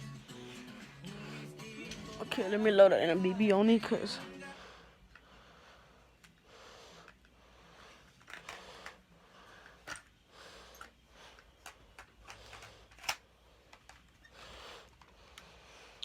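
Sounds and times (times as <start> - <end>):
clicks and rattles of pistol loading: 8.1 - 9.0, 10.7 - 14.2.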